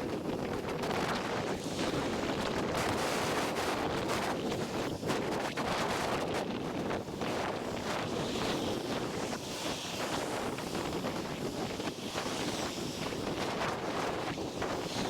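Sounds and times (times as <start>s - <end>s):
gusting wind on microphone: 0.0s - 15.0s.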